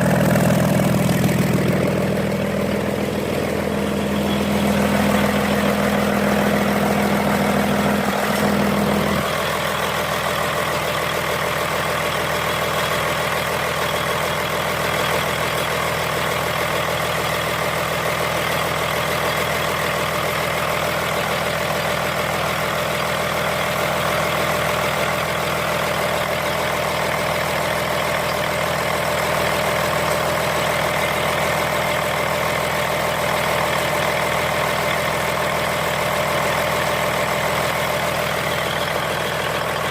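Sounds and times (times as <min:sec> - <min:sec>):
low hum: 0:00.0 - 0:09.5
diesel engine running: 0:00.0 - 0:39.9.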